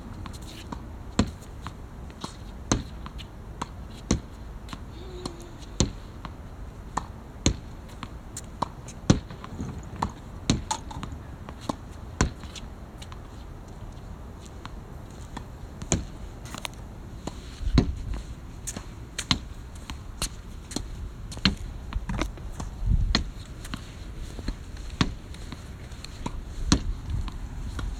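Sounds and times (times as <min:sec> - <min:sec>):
rackets striking shuttlecocks: 0:09.1 - 0:11.2.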